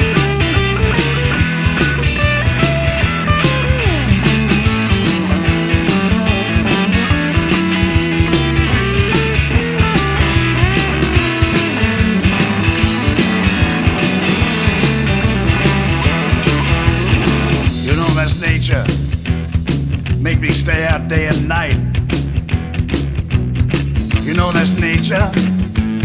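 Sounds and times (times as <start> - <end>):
bass: 0.0 - 26.0
electric guitar bending notes: 0.0 - 26.0
steady drum beat: 0.0 - 26.0.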